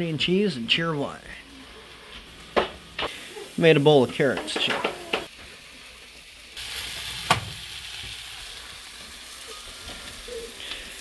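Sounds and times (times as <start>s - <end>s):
food sizzling in a skillet: 1.4s - 11.0s.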